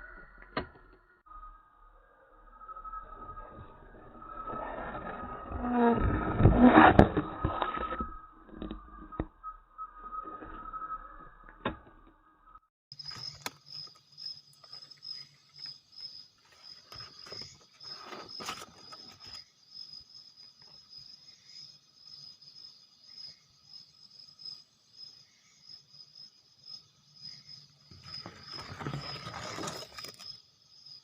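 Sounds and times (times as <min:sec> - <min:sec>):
insects trilling: 0:12.9 - 0:31.0.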